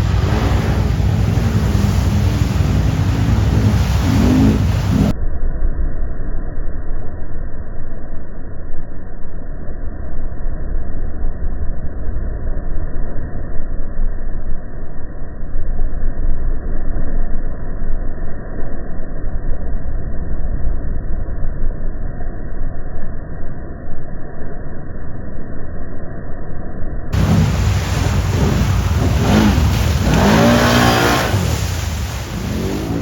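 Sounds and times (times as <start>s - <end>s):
quad bike rumble: 0.0s - 5.1s, 27.2s - 33.0s
wind noise: 0.0s - 5.1s, 27.2s - 33.0s.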